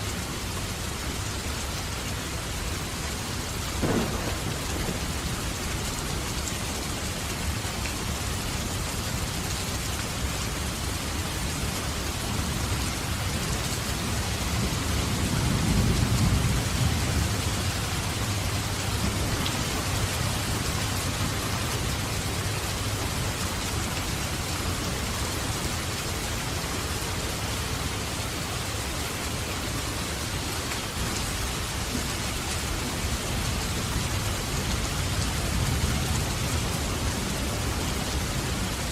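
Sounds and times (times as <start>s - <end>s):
steady rain falling: 0.0s - 38.9s
low roll of thunder: 3.8s - 6.4s, 14.8s - 18.2s.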